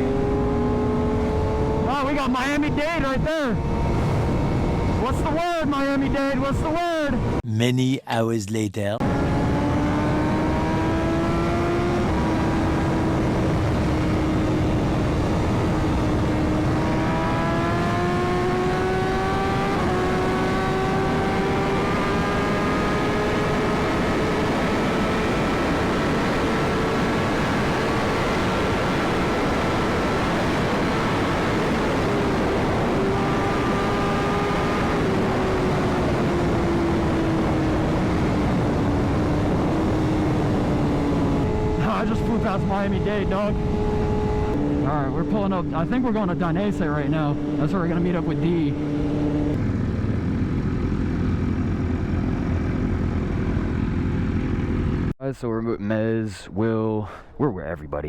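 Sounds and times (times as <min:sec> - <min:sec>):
motorcycle engine at speed: 0:00.0 - 0:05.3, 0:09.0 - 0:55.1
wind rush on microphone: 0:03.6 - 0:05.1, 0:43.2 - 0:44.7.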